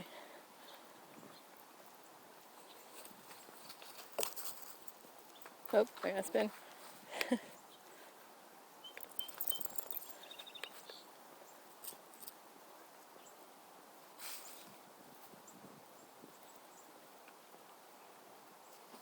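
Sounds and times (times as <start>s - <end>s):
light clicks and rustles: 2.6s - 7.4s, 9.0s - 11.0s
short high-pitched chirps: 9.0s - 10.7s.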